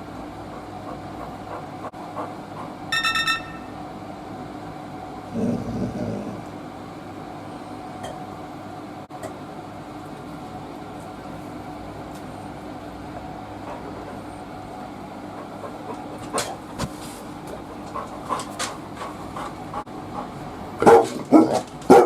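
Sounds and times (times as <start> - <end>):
constant tone: 3.0 - 3.8.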